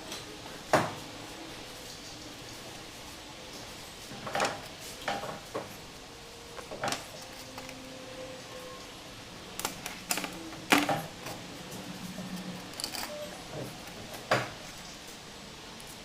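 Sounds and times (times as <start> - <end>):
small hard parts clicking: 12.4 - 14.4.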